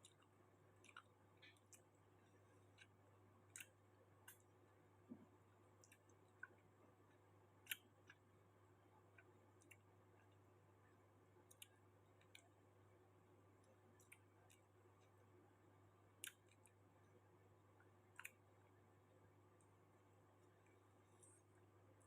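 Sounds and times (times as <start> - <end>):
person chewing quietly: 0.0 - 4.5.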